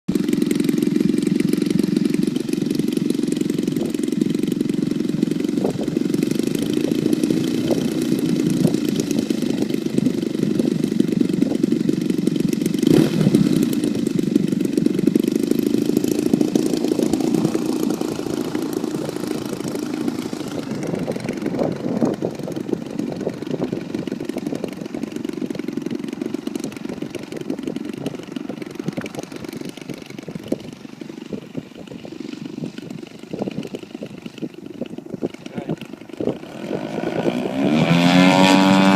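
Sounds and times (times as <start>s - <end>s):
model airplane engine running: 0.1s - 38.9s.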